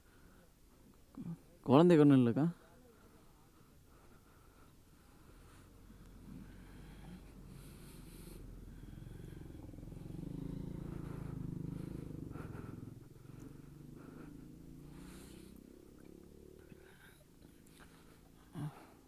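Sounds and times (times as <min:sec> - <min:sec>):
motorcycle engine rumbling: 0:05.7 - 0:19.0.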